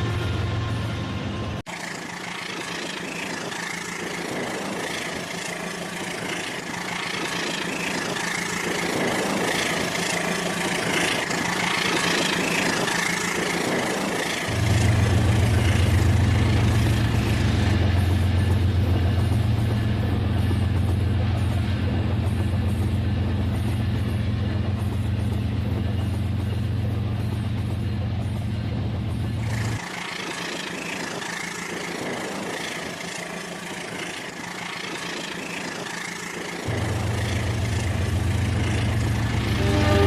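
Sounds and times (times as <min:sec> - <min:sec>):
toy train running on track: 0:01.7 - 0:15.9, 0:29.5 - 0:39.1
low hum: 0:36.7 - 0:40.0.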